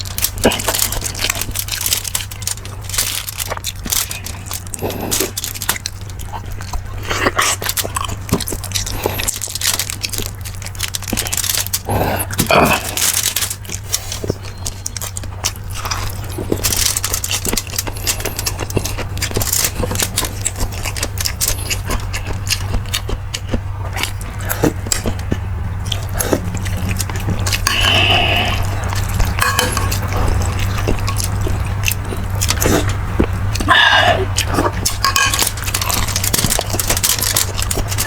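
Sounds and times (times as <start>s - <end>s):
person chewing: 0.0s - 38.0s
steady low hum: 0.0s - 38.0s
utensils clicking on dishes: 25.9s - 33.0s, 34.4s - 38.0s
person slurping broth: 27.6s - 29.8s, 33.6s - 34.4s.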